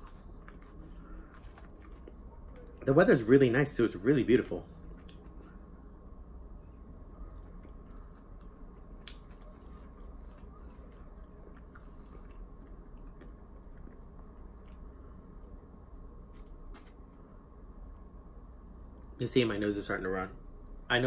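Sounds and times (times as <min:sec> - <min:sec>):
man chewing food: 0:00.0 - 0:02.8, 0:04.7 - 0:05.8, 0:06.7 - 0:15.5
low steady hum: 0:00.0 - 0:21.0
mouth clicks and crunches: 0:07.4 - 0:14.8.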